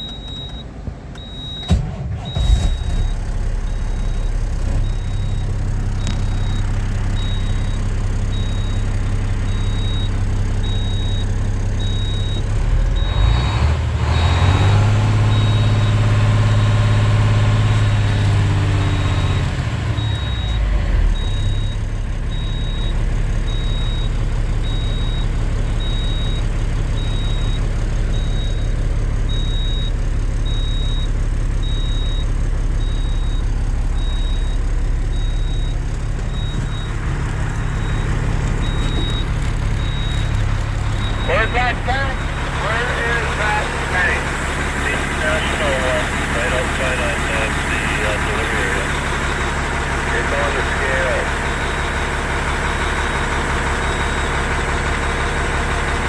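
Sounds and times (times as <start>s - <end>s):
sharp engine knocks: 0.0s - 7.8s, 32.8s - 41.3s
diesel truck engine revving: 0.0s - 56.0s
short high beeps: 37.6s - 49.0s.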